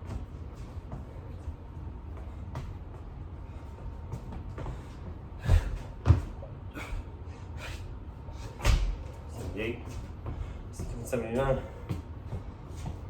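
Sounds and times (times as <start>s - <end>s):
puffing breaths: 4.6s - 6.0s
body thudding on floor: 5.4s - 6.4s, 8.6s - 9.1s.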